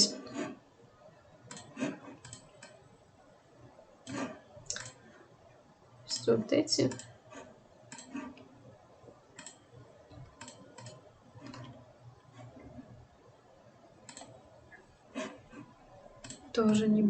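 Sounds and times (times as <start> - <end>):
faint low hum: 0.0 - 17.0
computer mouse clicks: 1.5 - 2.8, 4.0 - 5.0, 6.9 - 8.5, 9.4 - 12.7, 14.0 - 14.4, 16.2 - 16.8.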